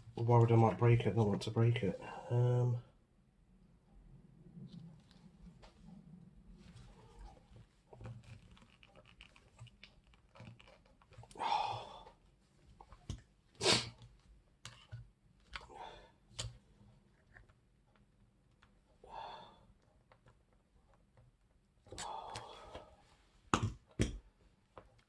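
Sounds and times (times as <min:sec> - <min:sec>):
plastic clicks taps and scrapes: 0:14.0 - 0:15.6.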